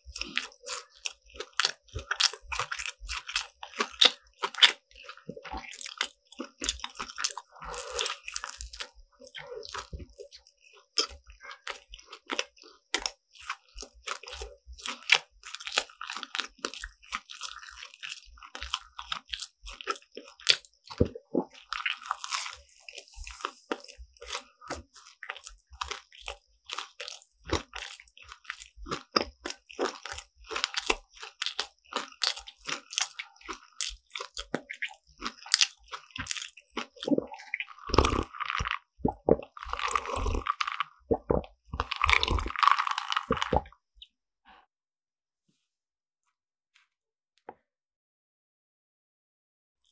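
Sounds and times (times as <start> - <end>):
crunching of crisp pastry: 0.0 - 43.8
wet chewing: 0.0 - 43.8.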